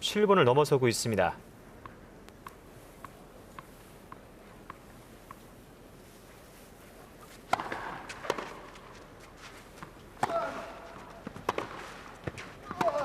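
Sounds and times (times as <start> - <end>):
tennis racket striking ball: 7.5 - 8.9, 9.8 - 13.0.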